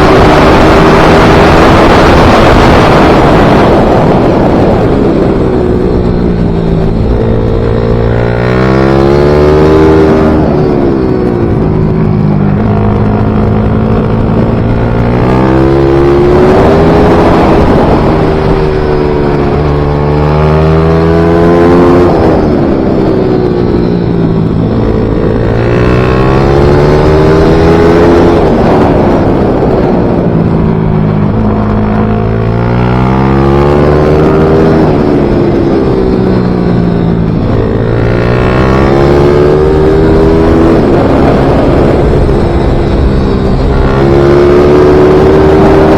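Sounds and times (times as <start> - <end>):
motorcycle engine revving hard: 0.0 - 45.9.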